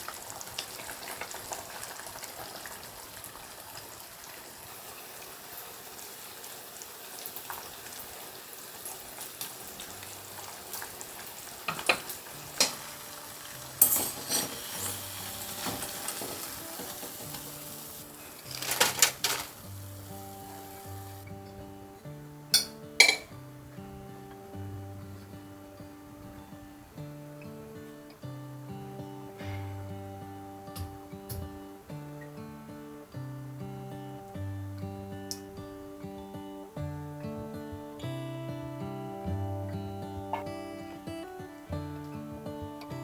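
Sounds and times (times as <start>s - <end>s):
food sizzling in a pan: 0.0s - 21.4s
metal utensil scraping a pan: 13.8s - 17.5s.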